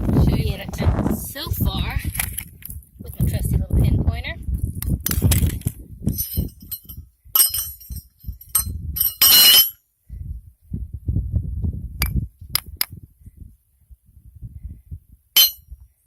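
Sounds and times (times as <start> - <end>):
handling rumble: 5.1 - 9.7
scrap metal clinking: 5.1 - 9.8, 15.4 - 15.6.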